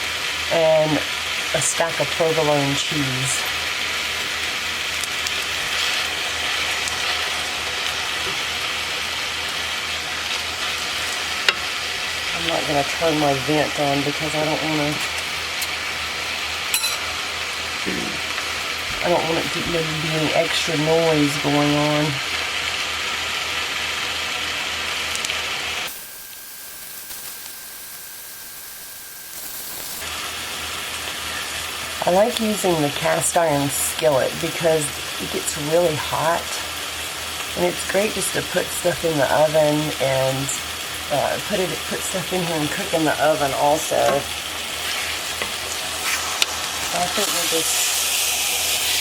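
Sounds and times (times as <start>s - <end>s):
meat sizzling in a skillet: 0.0s - 49.0s
faint crackles: 25.1s - 30.3s
faint steady high tone: 25.9s - 30.0s.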